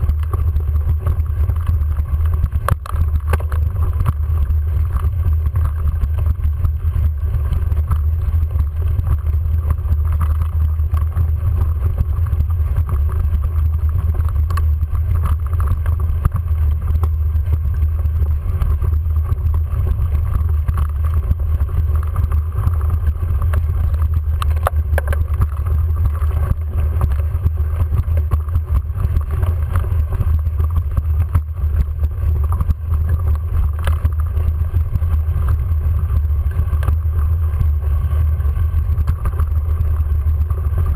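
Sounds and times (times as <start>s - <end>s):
faint clicks: 12.8s - 17.1s.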